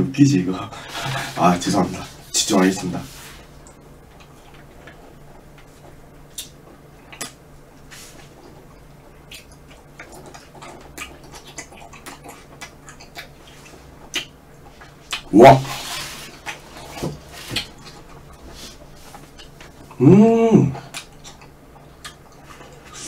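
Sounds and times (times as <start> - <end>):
faint steady hum: 0.0 - 23.0
person chewing: 3.6 - 20.0, 20.8 - 23.0
mouth clicks and smacks: 6.3 - 7.4, 8.4 - 15.4, 17.5 - 20.0, 20.8 - 23.0.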